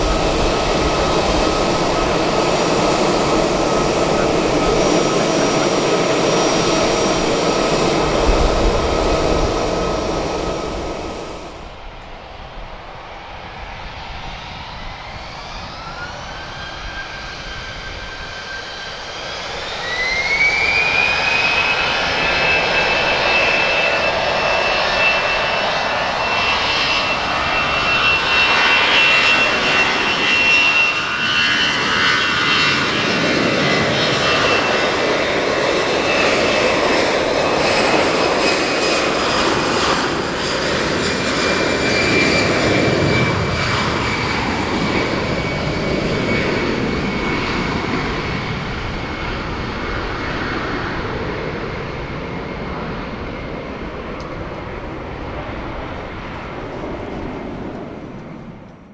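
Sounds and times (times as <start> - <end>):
jet engines spooling up: 0.0 - 58.9.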